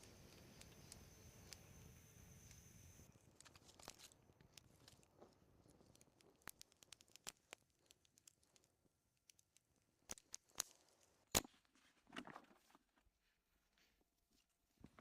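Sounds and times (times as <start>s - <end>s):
campfire crackling: 0.0s - 11.5s.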